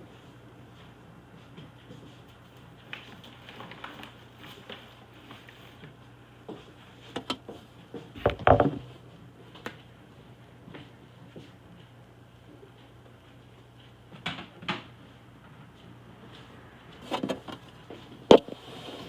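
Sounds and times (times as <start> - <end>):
clatter and thud: 8.2 - 8.9.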